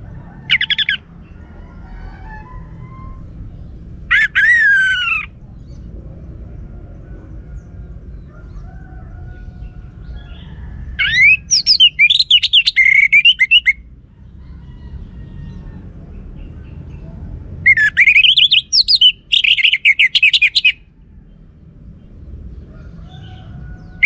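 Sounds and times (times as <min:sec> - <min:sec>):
low steady rumble: 0:00.0 - 0:24.0
thrush singing whistled song: 0:00.5 - 0:01.0, 0:04.1 - 0:05.3, 0:11.0 - 0:13.8, 0:17.7 - 0:20.8.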